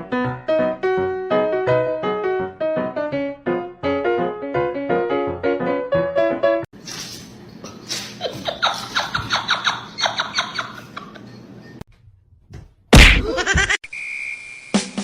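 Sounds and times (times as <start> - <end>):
loud sudden thump: 13.0 - 13.7.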